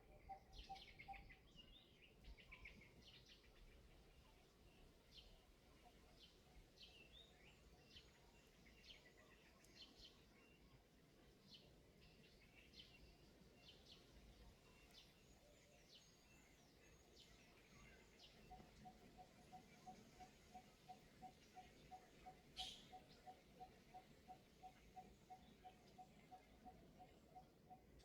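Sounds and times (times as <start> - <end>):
faint high bird chirps: 13.7 - 28.0.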